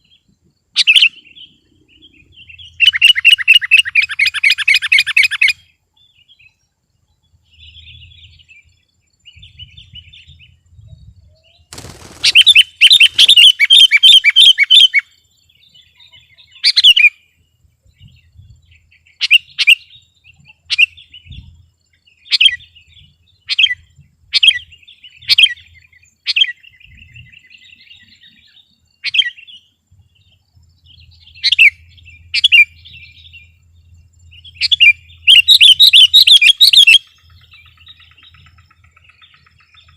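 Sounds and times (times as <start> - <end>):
bulbul singing: 0.0 - 39.9
sharp falling bird calls: 11.6 - 15.0, 34.4 - 39.9
rapid chattering bird notes: 11.7 - 14.5.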